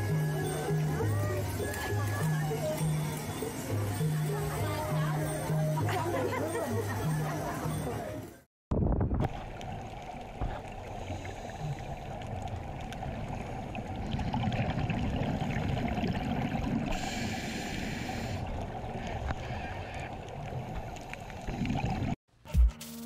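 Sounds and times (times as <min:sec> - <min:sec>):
muffled underwater water rush: 0:08.7 - 0:22.2.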